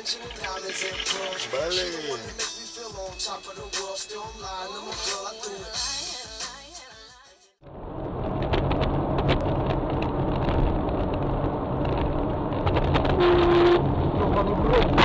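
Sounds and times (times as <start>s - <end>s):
car road noise and engine rumble: 7.7s - 15.0s.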